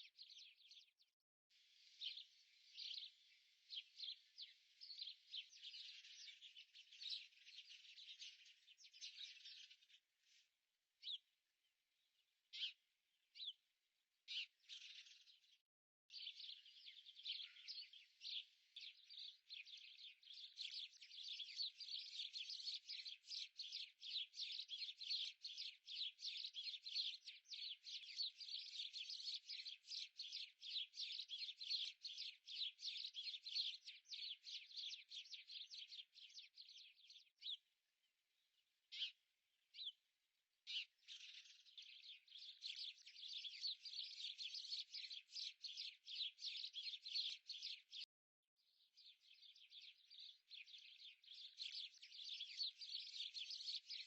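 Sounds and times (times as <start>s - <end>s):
small bird chirping rapidly: 40.7s - 48.1s.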